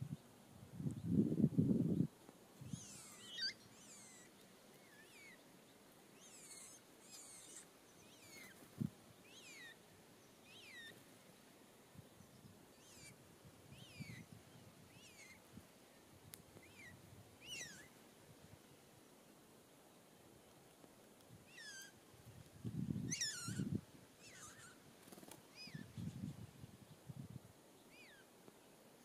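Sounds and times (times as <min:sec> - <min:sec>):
faint songbird calls: 0:01.9 - 0:18.0, 0:21.3 - 0:22.0, 0:23.0 - 0:27.1, 0:27.7 - 0:29.0.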